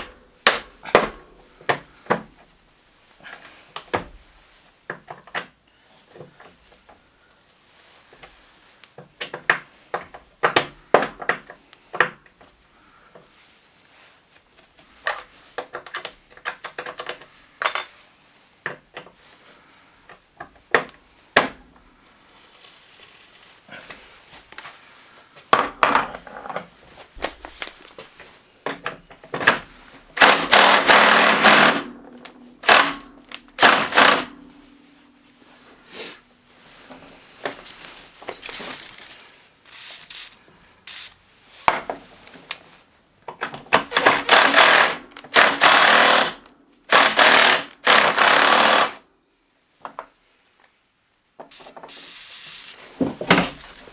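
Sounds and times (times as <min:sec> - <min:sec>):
tools clicking and knocking: 0:15.0 - 0:18.0, 0:28.6 - 0:34.5, 0:43.3 - 0:49.0.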